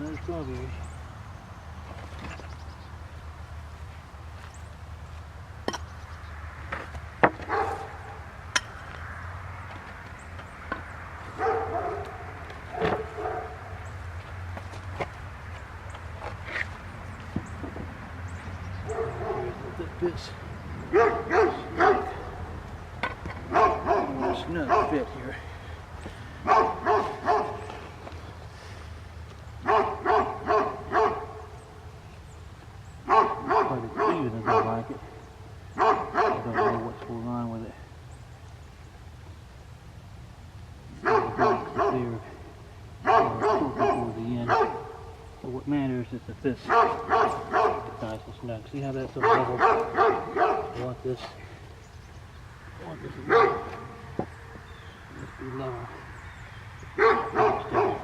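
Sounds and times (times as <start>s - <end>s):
dog barking: 7.5s - 8.2s, 11.4s - 13.6s, 18.8s - 19.6s, 20.9s - 22.4s, 23.5s - 25.2s, 26.4s - 27.7s, 29.6s - 31.5s, 33.0s - 35.0s, 35.8s - 37.0s, 41.0s - 42.3s, 43.0s - 45.1s, 46.6s - 48.0s, 49.2s - 51.4s, 53.2s - 54.0s, 57.0s - 58.0s.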